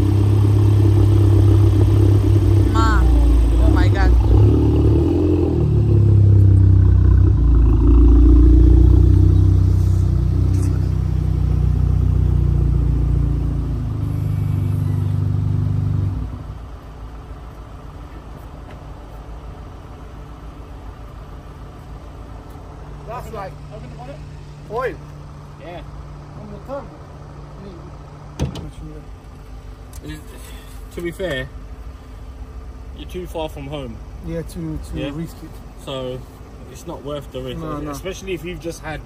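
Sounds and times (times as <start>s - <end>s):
car engine running: 0.0s - 39.0s.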